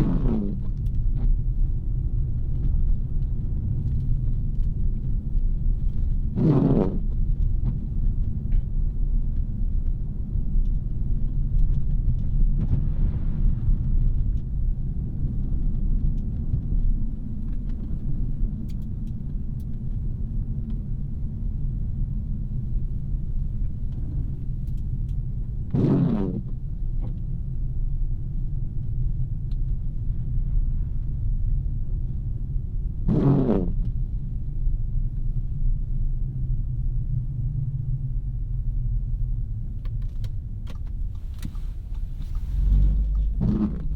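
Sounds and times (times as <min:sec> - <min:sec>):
car engine and road noise: 0:39.6 - 0:43.9.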